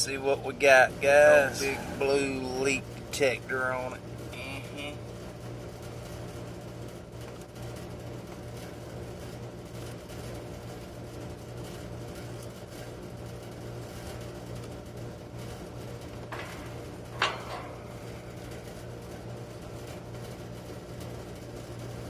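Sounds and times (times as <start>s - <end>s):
constant hiss: 0.0s - 5.0s
low machine hum: 0.0s - 22.0s.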